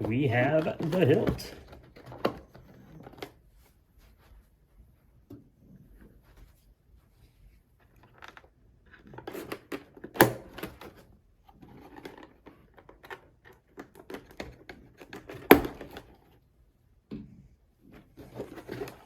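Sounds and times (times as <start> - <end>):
packaging rustling and clicking: 0.0 - 3.4.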